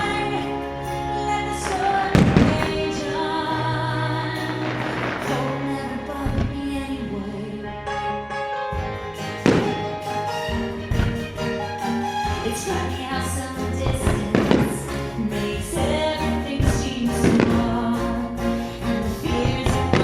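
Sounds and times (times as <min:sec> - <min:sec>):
music with singing over loudspeakers: 0:00.0 - 0:20.0
firework booms: 0:01.6 - 0:03.3, 0:04.4 - 0:06.7.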